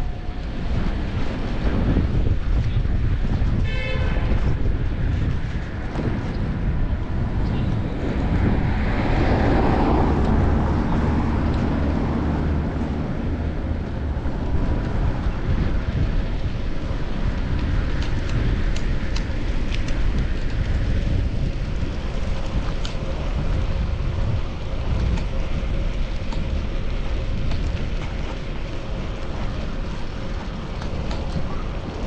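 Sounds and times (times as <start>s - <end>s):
city traffic: 0.0s - 32.0s
wind rushing over camera: 0.0s - 32.0s
large vehicle passing close: 5.1s - 18.6s.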